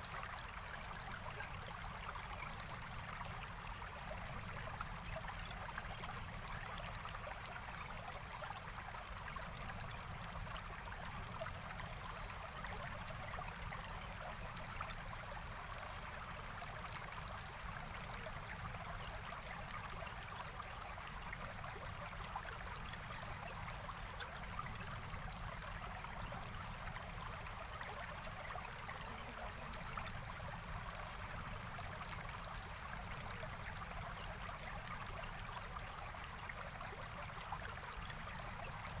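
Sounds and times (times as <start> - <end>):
stream flowing over rocks: 27.4 - 34.4.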